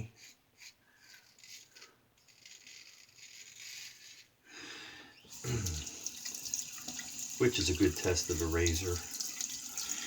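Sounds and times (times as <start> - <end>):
razor scraping stubble: 0.0 - 4.4.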